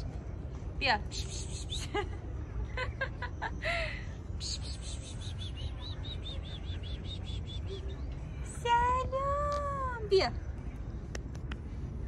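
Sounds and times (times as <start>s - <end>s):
street traffic rumble: 0.0s - 12.0s
bird chirping: 1.1s - 2.0s, 4.3s - 9.3s.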